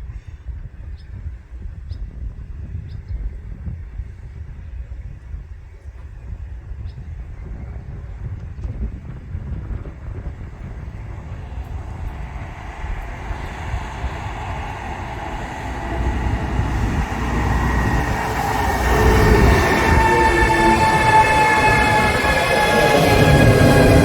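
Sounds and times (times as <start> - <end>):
train rumble: 3.8 - 24.0
steady high-pitched tones: 14.0 - 24.0.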